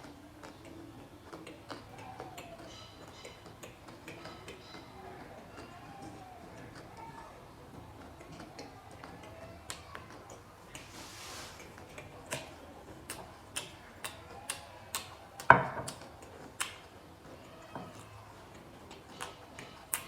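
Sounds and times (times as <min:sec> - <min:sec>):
eating clicks and crisp knocks: 0:00.0 - 0:10.9, 0:11.6 - 0:20.0.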